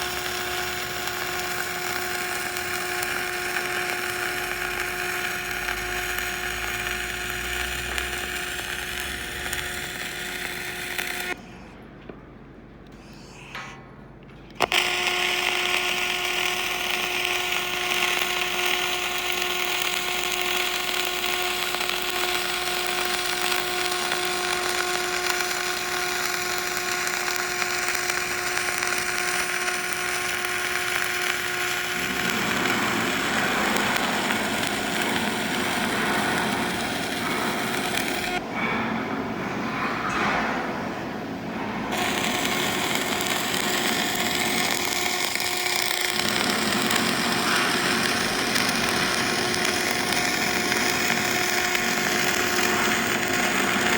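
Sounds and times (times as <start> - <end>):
power tool motor whining: 0.0 - 11.4, 14.5 - 38.4, 41.9 - 53.9
hiss: 19.8 - 38.4.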